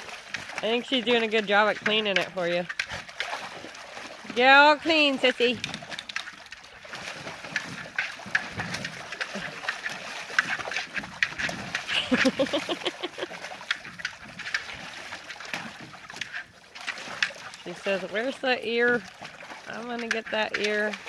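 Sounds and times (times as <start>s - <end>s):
dog splashing in water: 0.0s - 21.0s
dog chewing plastic buoy: 5.7s - 17.4s.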